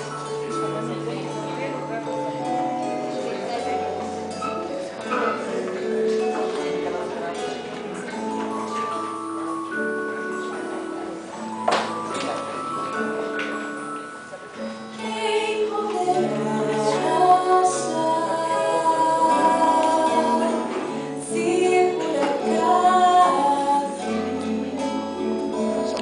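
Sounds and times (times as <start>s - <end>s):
held accompanying notes: 0.0s - 26.0s
woman singing: 15.0s - 26.0s.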